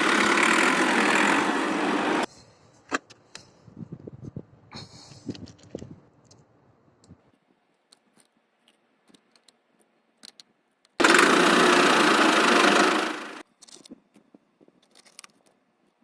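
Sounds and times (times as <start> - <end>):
small motor whirring: 0.0 - 2.3, 11.0 - 13.4.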